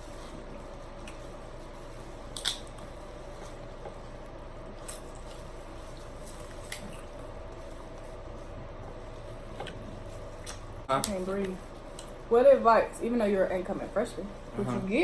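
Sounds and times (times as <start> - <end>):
faint steady hum: 0.0 - 15.0
wet eating sounds: 0.1 - 11.2.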